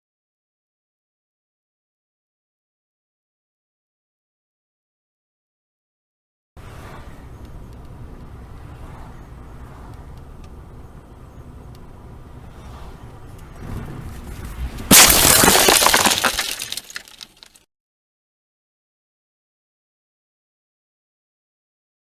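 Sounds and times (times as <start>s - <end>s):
road and engine rumble: 6.6s - 17.6s
loud crash of impact: 14.9s - 17.3s.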